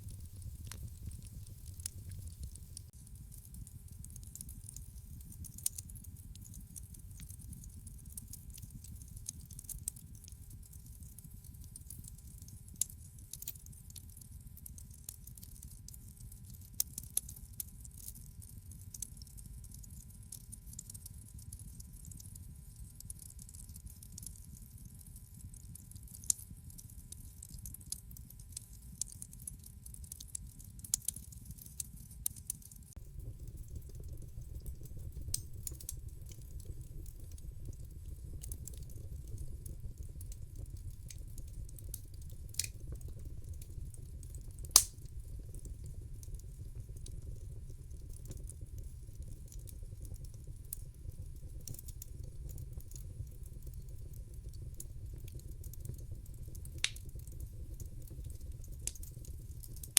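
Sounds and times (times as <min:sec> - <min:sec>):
low rumble of flames: 0:00.0 - 0:19.8, 0:28.2 - 0:59.9
fire crackles and pops: 0:00.0 - 0:59.9.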